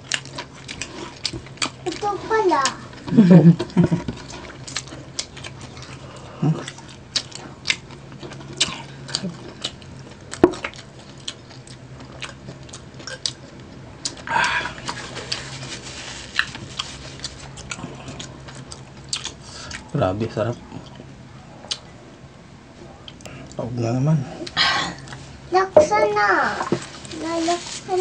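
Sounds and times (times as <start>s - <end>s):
person chewing: 0.0s - 19.9s, 20.7s - 21.9s, 23.0s - 23.6s.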